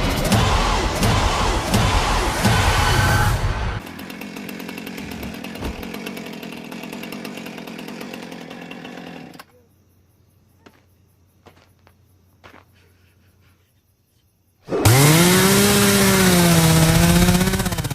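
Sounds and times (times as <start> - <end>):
music: 0.0 - 3.8
small engine running: 0.0 - 9.6, 14.7 - 17.9.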